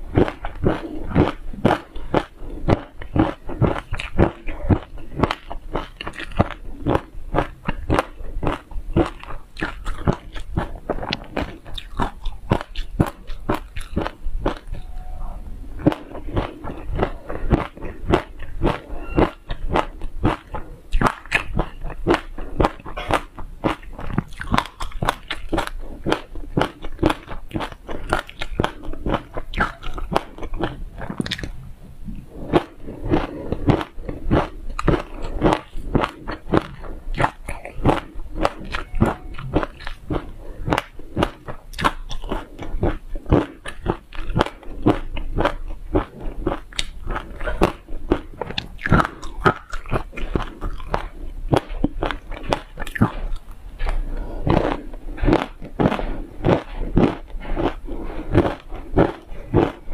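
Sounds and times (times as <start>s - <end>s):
chewing and crunching seeds: 0.0s - 15.0s, 15.8s - 59.9s.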